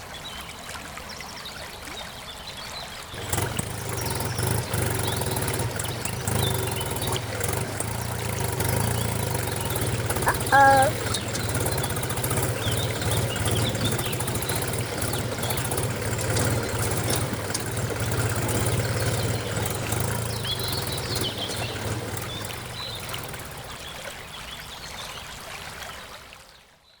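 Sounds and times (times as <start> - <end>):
birds chirping: 3.1 - 24.8
small motor humming: 3.2 - 23.9.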